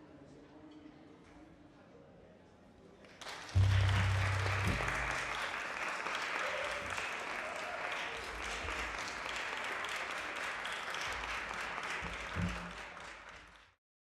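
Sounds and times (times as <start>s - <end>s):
audience applauding: 3.2s - 13.8s
low held note: 3.6s - 5.5s.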